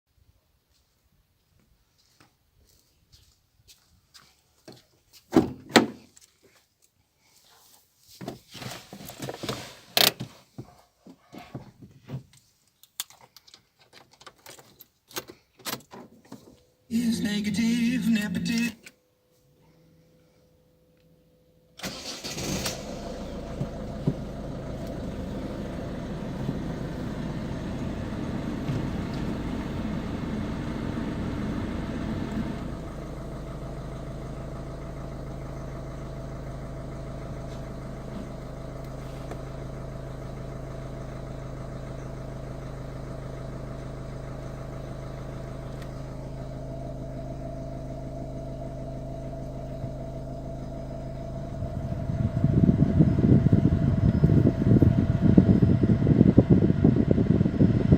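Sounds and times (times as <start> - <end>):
starter motor cranking: 21.8 - 32.9
diesel engine running rough then idling: 21.8 - 57.9.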